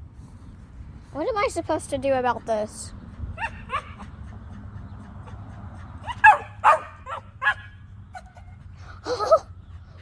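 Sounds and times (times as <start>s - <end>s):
dog barking and yipping: 3.4s - 4.1s, 6.0s - 8.5s.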